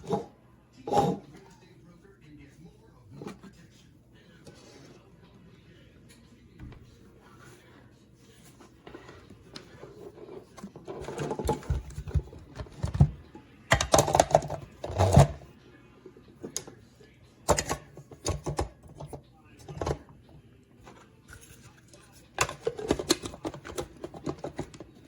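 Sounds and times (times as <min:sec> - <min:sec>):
plastic bowl knocking and rattling: 0:10.3 - 0:15.5, 0:17.5 - 0:20.1, 0:22.3 - 0:25.0.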